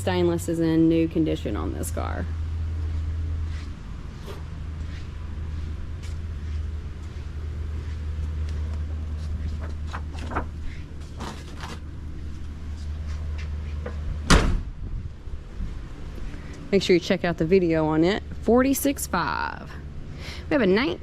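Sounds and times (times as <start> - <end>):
low hum: 0.0 - 21.0
loud slam: 14.3 - 14.8.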